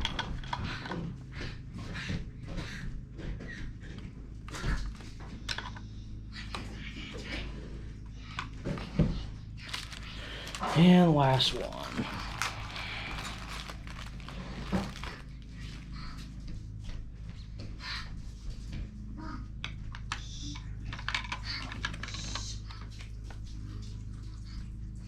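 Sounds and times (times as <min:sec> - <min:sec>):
low steady hum: 0:09.4 - 0:16.6.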